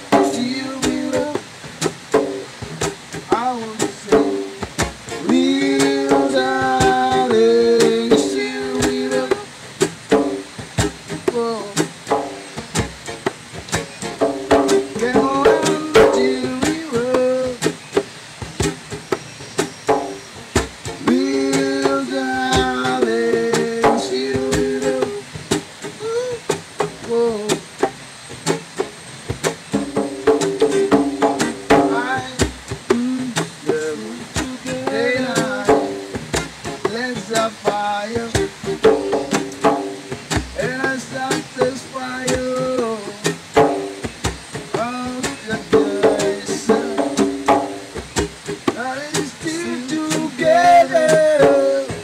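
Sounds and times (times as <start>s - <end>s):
man singing: 0.0s - 1.5s, 3.3s - 9.6s, 11.2s - 11.9s, 14.7s - 17.8s, 21.0s - 25.4s, 26.0s - 27.7s, 31.7s - 36.2s, 36.8s - 39.5s, 40.6s - 43.4s, 44.7s - 47.5s, 48.7s - 52.0s
acoustic guitar playing: 0.0s - 52.0s.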